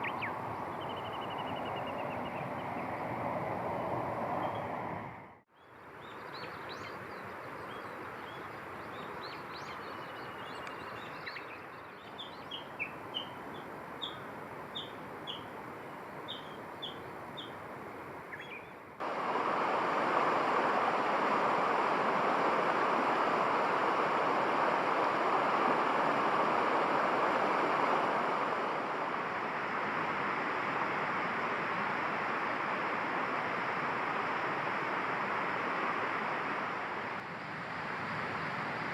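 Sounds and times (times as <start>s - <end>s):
bird chirping: 0.0s - 3.0s, 5.6s - 15.5s, 16.3s - 17.6s, 18.3s - 18.8s
steady rushing noise: 18.9s - 38.9s.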